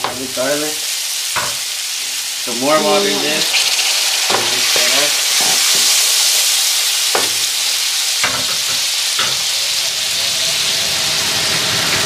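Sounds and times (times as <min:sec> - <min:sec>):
curry sizzling in a wok: 0:00.0 - 0:12.0
wooden spoon knocking a pan: 0:04.3 - 0:04.7, 0:07.1 - 0:07.5, 0:08.2 - 0:09.5.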